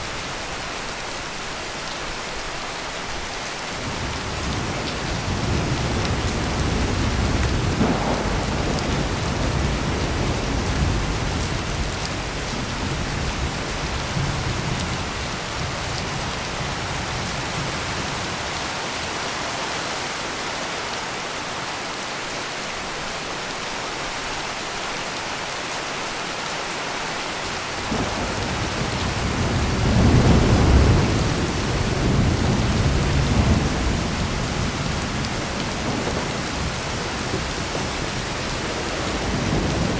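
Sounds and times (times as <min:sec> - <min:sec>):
heavy rain pouring: 0:00.0 - 0:39.9
rolling thunder: 0:03.9 - 0:18.4, 0:27.8 - 0:39.9.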